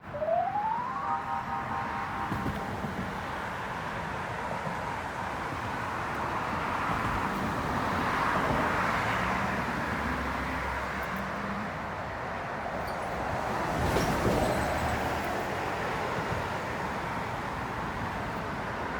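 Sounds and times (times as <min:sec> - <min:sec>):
distant road traffic: 0:00.0 - 0:12.8.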